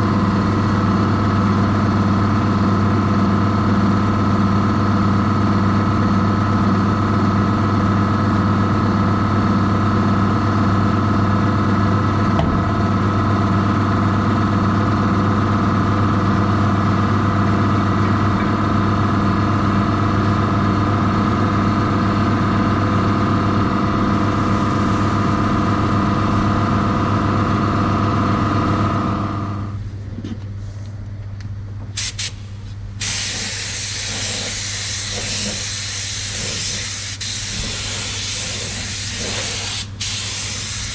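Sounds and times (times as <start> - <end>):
spray gun hissing: 32.0 - 40.9
motor running: 32.2 - 40.9.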